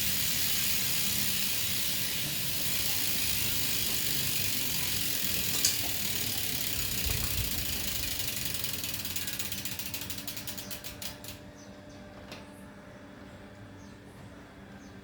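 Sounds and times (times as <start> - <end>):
bicycle freewheel ticking: 0.0 - 11.4.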